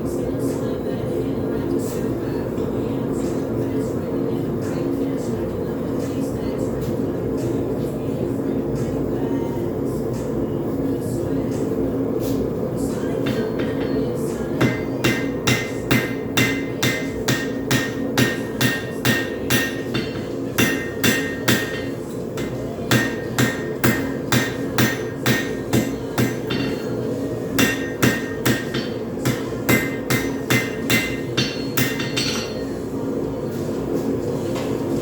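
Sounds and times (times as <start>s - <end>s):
steady hum: 0.0s - 35.0s
hammer ringing on anvil: 13.3s - 27.0s, 27.6s - 32.7s.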